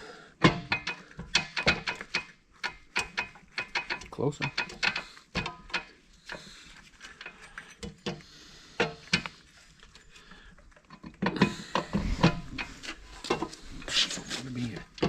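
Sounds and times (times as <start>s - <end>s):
metal tools clicking and knocking: 0.4s - 6.4s, 7.1s - 8.2s
metal clanking and scraping: 0.4s - 15.0s.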